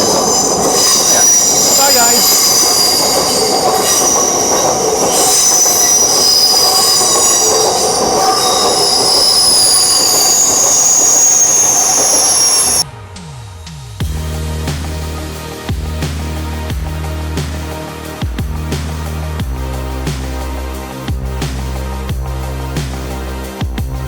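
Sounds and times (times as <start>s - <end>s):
high-pitched wheel squeal: 0.0s - 12.8s
train wheels on rails: 0.0s - 12.8s.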